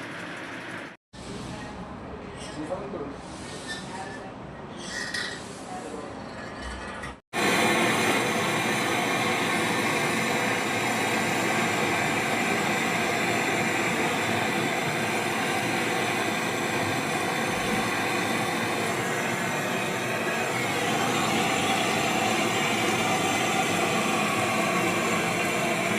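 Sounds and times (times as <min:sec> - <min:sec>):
machine rushing hum: 0:07.4 - 0:25.9.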